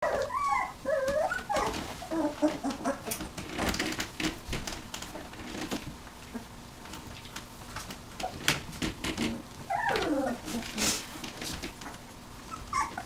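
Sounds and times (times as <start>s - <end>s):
puppies whimpering and squeaking: 0.0s - 4.0s, 8.2s - 8.5s, 9.3s - 13.0s
rustling: 0.0s - 13.0s.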